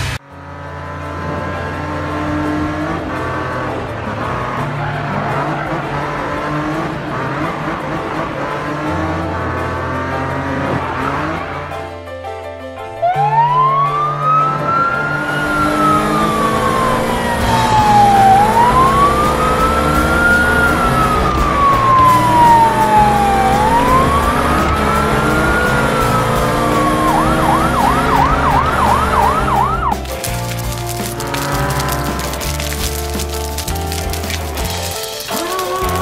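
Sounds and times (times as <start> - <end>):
fire engine siren: 8.7 - 11.7, 13.0 - 33.6.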